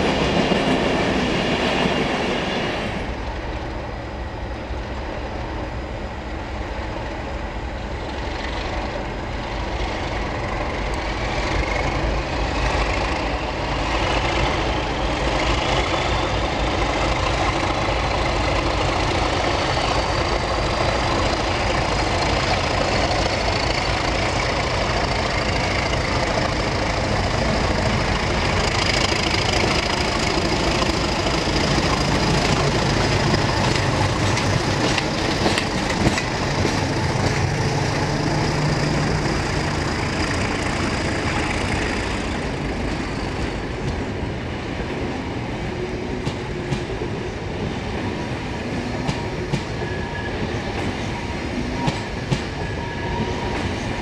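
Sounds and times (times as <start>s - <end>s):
diesel locomotive engine: 0.0s - 54.0s
wheels clicking over rail joints: 16.6s - 44.1s.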